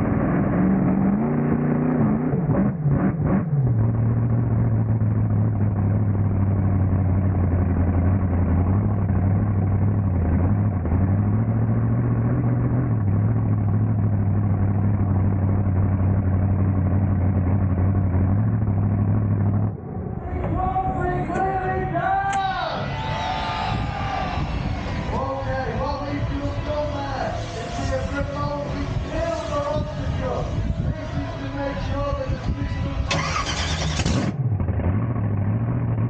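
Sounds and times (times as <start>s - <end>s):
truck engine droning: 0.0s - 36.0s.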